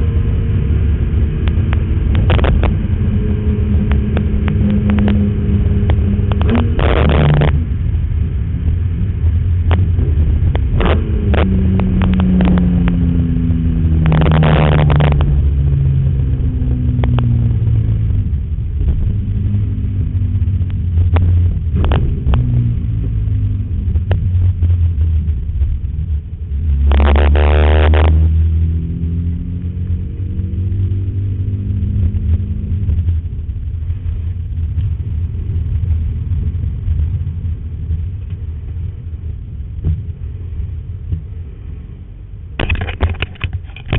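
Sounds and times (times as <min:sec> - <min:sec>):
car engine rumbling: 0:00.0 - 0:43.9
engine revving surges: 0:00.7 - 0:07.8, 0:09.7 - 0:20.2, 0:26.5 - 0:33.2.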